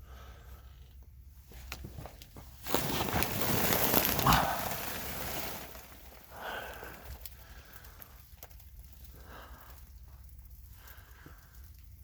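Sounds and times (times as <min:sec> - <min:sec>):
scraping and rustling: 0:02.4 - 0:06.3.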